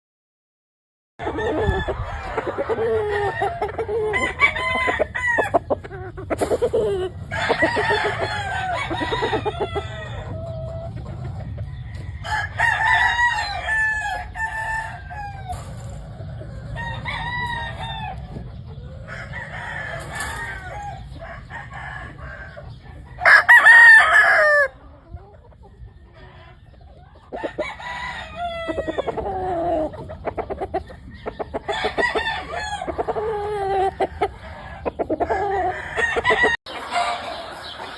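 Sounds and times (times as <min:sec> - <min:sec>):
roosters crowing: 0:01.2 - 0:25.1, 0:26.1 - 0:37.9
chickens clucking: 0:01.2 - 0:37.9.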